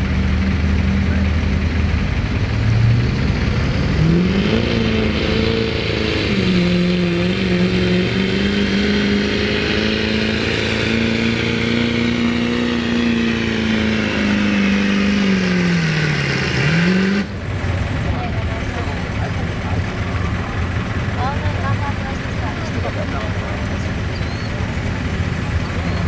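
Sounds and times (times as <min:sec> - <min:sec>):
diesel truck engine revving: 0:00.0 - 0:26.0.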